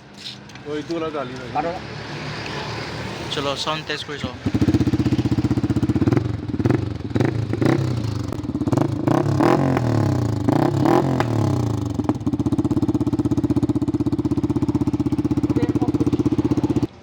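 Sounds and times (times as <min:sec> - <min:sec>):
motorcycle engine revving and idling: 0:02.4 - 0:17.0.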